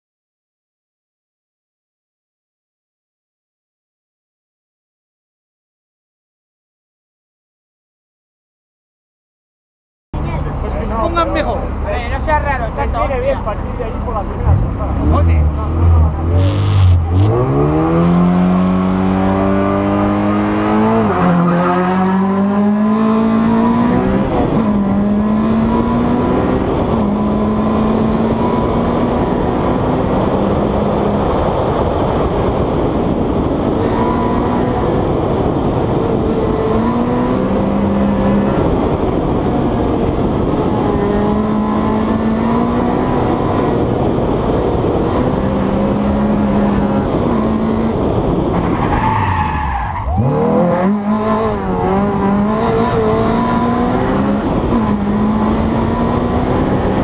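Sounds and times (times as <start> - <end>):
race car engine accelerating: 13.5 - 57.0.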